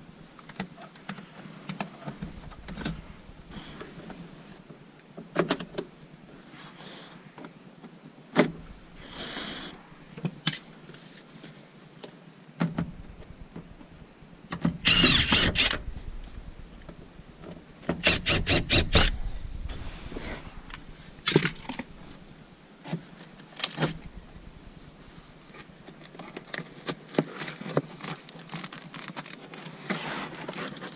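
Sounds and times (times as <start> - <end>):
loud scraping rustle: 14.8 - 25.7, 27.3 - 30.9.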